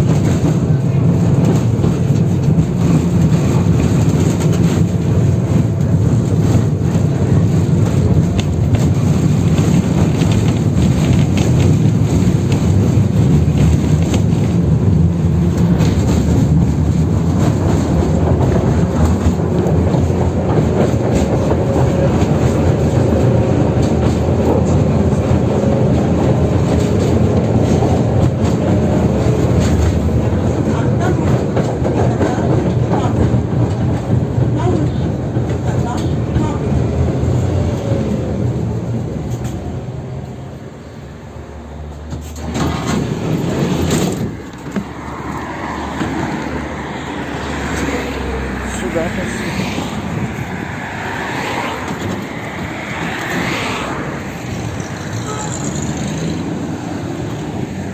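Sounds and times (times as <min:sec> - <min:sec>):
tram wheels rumbling on rail: 0:00.0 - 0:57.9
car body rattling: 0:42.1 - 0:47.2.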